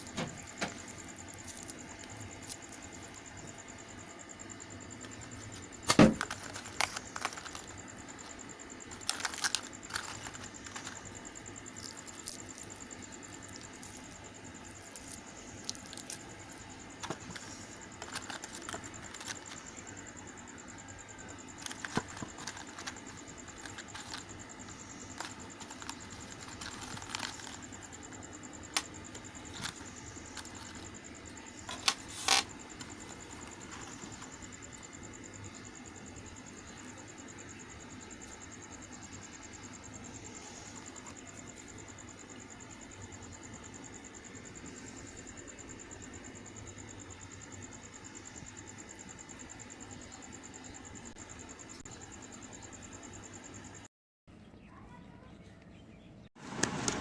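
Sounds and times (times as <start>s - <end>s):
wrappers crinkling: 8.9s - 11.1s, 21.6s - 24.3s, 25.1s - 27.9s.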